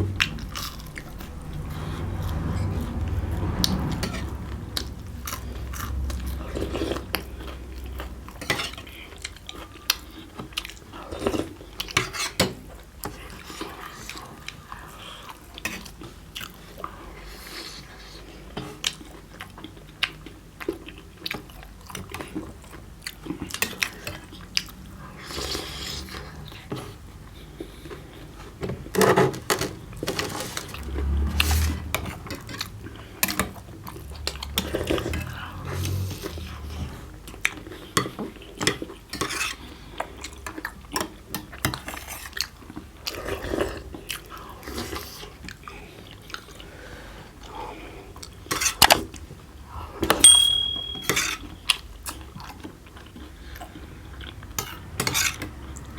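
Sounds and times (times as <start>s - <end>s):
spoons and plates clinking: 50.2s - 51.4s.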